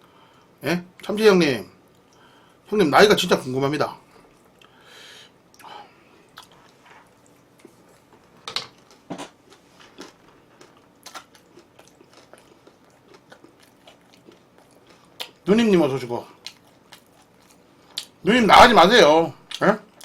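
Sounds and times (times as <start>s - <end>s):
person chewing food: 5.6s - 15.4s, 16.4s - 18.2s.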